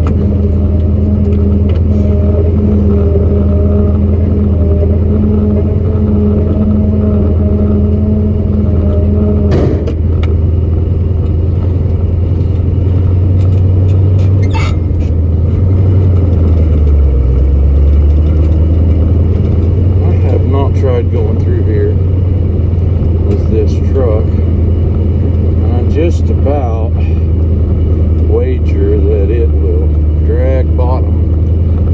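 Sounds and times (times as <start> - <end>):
higher hum: 0.0 - 31.9
truck engine droning: 0.0 - 31.9
clunk: 9.5 - 10.4.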